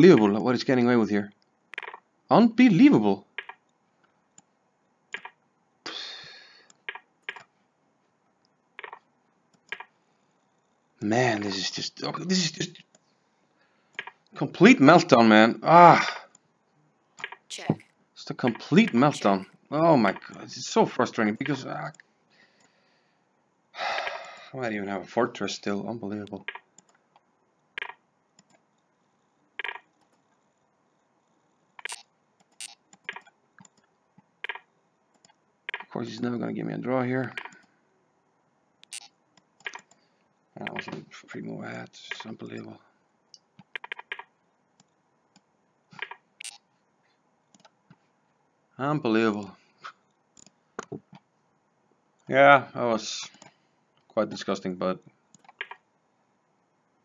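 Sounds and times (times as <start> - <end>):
short clicks: 31.8 - 36.0, 38.8 - 40.0, 55.3 - 55.8.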